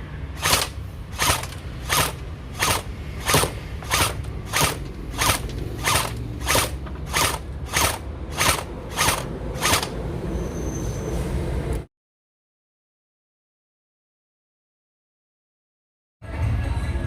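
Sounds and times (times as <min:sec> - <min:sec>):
toy blaster firing single shots: 0:00.4 - 0:10.0.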